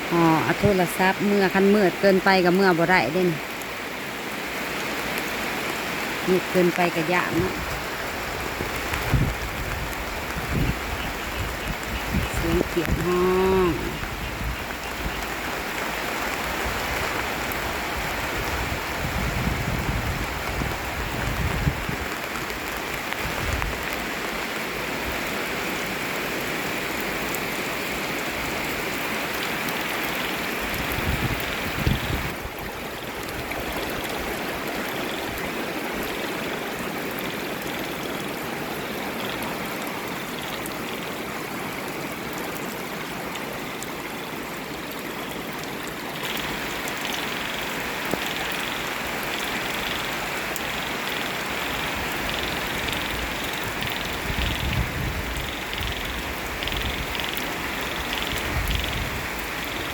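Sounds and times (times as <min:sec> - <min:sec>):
heavy rain falling: 0:00.0 - 0:59.9
small frogs calling: 0:09.9 - 0:17.9, 0:28.9 - 0:41.2, 0:45.2 - 0:59.9.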